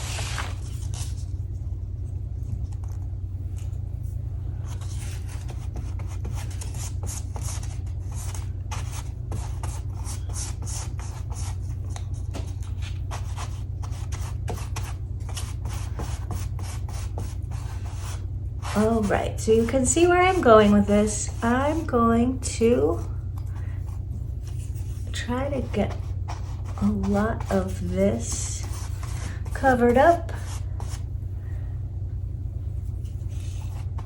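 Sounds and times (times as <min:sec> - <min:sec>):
paper rustling and scraping: 0:00.0 - 0:01.4, 0:04.6 - 0:21.9, 0:23.6 - 0:31.0, 0:32.8 - 0:34.0
low hum: 0:00.0 - 0:34.0.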